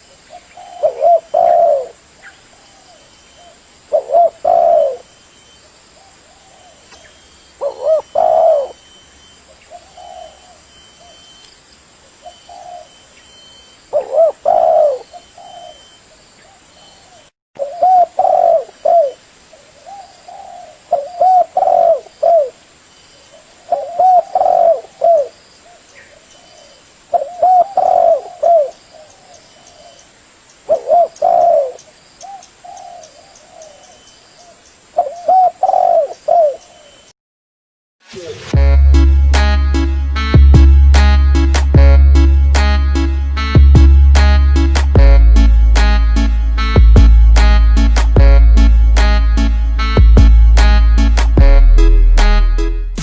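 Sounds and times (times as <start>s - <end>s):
dove cooing: 0.3s - 2.0s, 2.6s - 5.2s, 6.1s - 9.0s, 9.7s - 11.3s, 12.2s - 13.0s, 13.9s - 22.6s, 23.3s - 30.0s, 30.7s - 37.0s.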